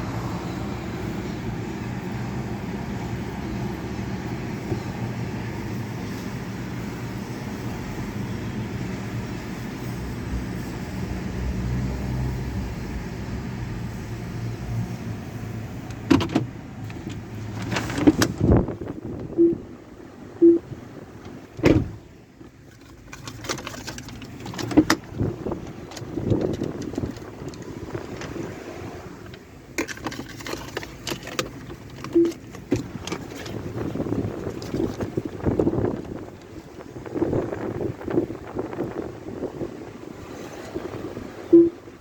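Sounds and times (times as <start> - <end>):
car wash machinery rumble: 0.0 - 42.0
short tones: 19.3 - 19.7, 20.4 - 20.7, 41.5 - 41.9.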